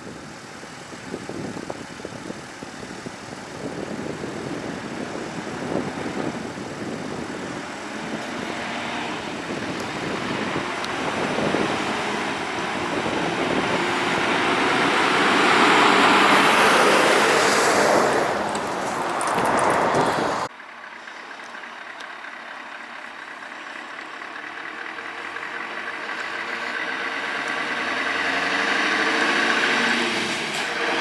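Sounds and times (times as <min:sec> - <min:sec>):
truck driving past: 0:04.2 - 0:31.0.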